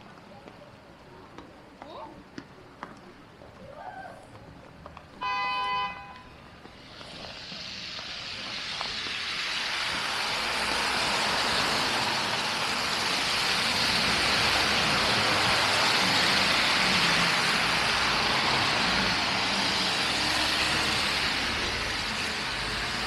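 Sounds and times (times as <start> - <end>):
vehicle horn toot: 5.2 - 6.2
passing traffic hiss: 5.2 - 23.0.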